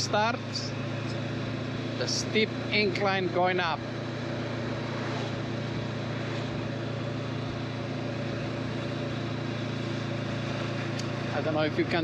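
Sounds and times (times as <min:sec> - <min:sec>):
motorcycle engine climbing hill: 0:00.0 - 0:12.0.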